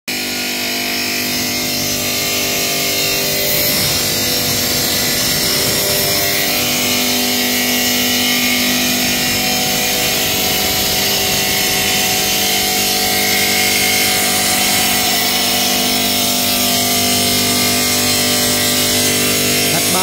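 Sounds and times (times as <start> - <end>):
stone-cutting machine humming: 0.1 - 20.0.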